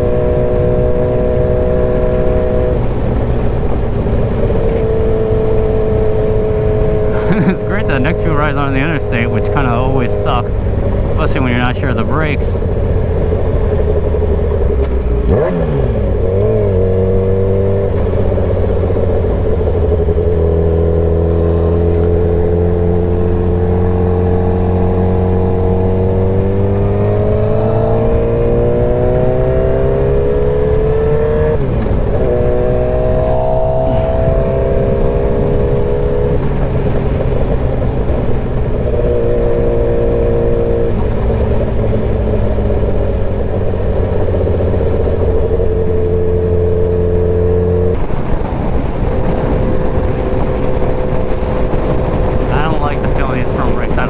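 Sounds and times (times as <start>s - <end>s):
motorcycle engine accelerating: 12.6s - 54.0s.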